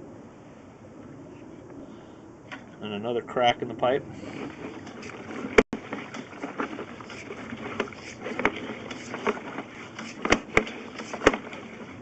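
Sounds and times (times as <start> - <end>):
cable scraping in pipe: 4.1 - 12.0
sharp clicks and knocks: 4.7 - 11.8.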